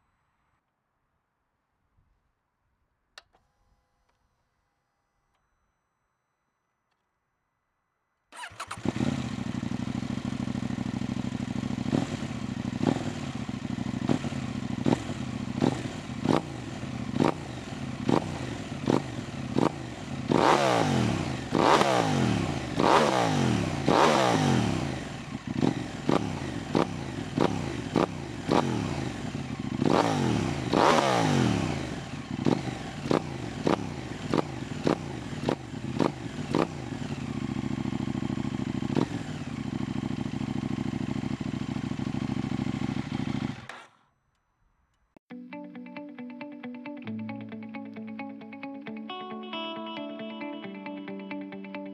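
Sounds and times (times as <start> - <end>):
motorcycle engine idling: 8.4 - 43.9
motorcycle engine revving: 8.4 - 44.0.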